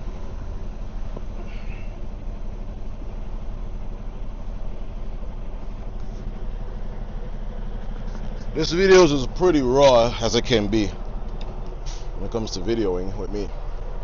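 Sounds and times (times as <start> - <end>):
diesel truck engine idling: 0.0 - 14.0.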